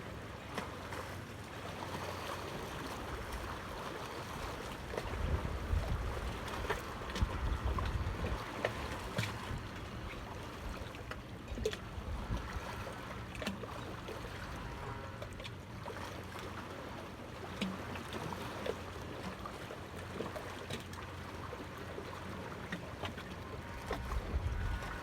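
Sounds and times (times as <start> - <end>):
water rushing: 0.0 - 25.0
wind rumble on microphone: 4.3 - 10.8, 11.5 - 12.9, 23.6 - 25.0.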